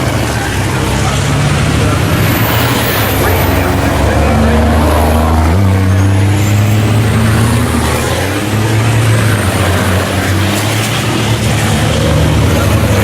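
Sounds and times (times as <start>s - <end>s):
diesel truck engines droning: 0.0s - 13.0s.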